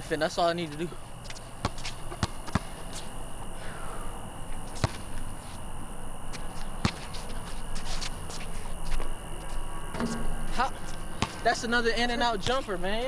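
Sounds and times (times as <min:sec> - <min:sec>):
basketball bouncing: 0:01.2 - 0:03.0, 0:04.8 - 0:05.3, 0:06.3 - 0:07.2, 0:09.9 - 0:13.0.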